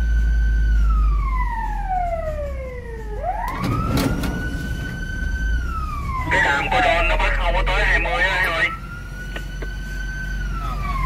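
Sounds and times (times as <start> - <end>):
fire engine siren wailing: 0.0 - 11.0
low rumble: 2.6 - 8.5.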